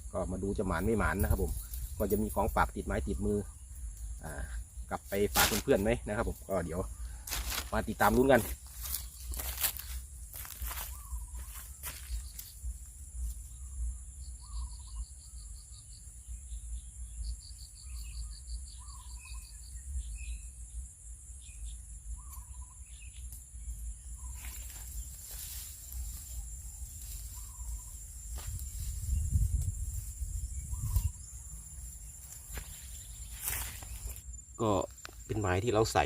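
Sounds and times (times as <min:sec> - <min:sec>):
insects trilling: 0:00.0 - 0:36.0
wind rumbling on microphone: 0:25.8 - 0:34.2.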